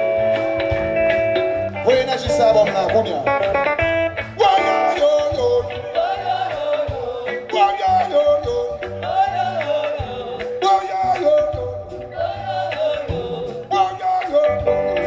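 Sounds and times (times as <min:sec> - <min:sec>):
live band music: 0:00.0 - 0:15.0
person singing: 0:04.2 - 0:15.0.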